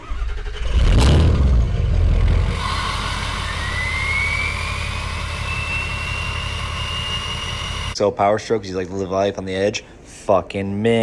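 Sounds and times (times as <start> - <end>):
diesel truck engine revving: 0.0 - 8.0
turbocharger whistle: 2.3 - 8.0.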